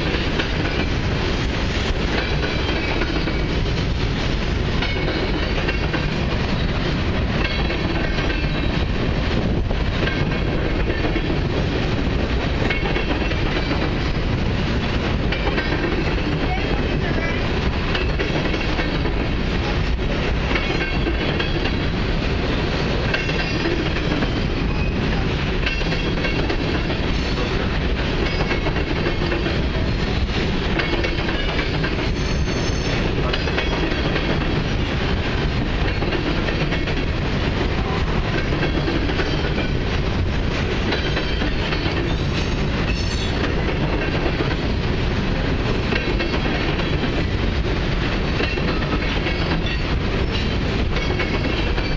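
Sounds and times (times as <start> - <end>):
freight train wheels rumbling: 0.0 - 51.9.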